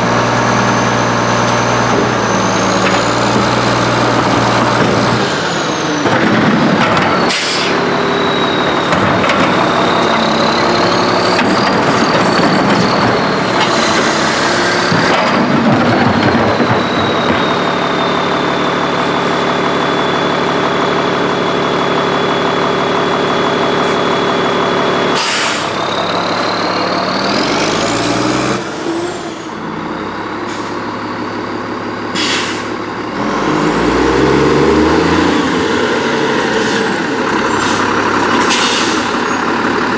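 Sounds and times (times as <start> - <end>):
hydraulic whine: 0.0 - 31.0
garbage truck engine revving: 0.0 - 39.9
air brakes hissing: 7.2 - 14.9, 23.7 - 26.7, 30.4 - 30.9, 32.1 - 32.9, 36.4 - 39.4.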